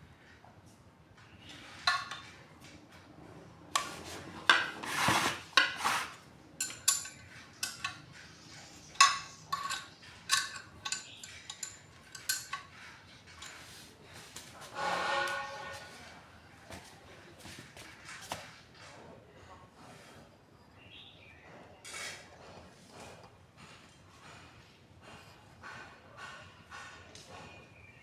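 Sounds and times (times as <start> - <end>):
metal scrape: 3.8 - 7.9, 13.3 - 16.2
metal clinks and knocks: 6.6 - 13.9.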